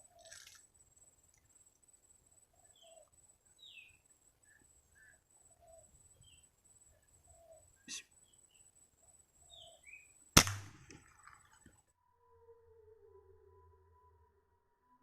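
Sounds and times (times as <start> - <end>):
faint bird chirps: 0.0 - 10.4
air rifle shot: 10.4 - 11.2.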